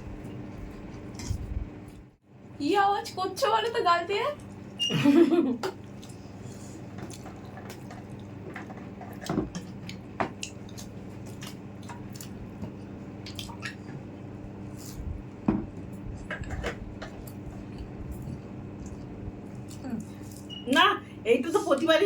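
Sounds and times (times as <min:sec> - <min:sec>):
wet chewing mouth noises: 0:09.8 - 0:14.0, 0:17.1 - 0:20.6.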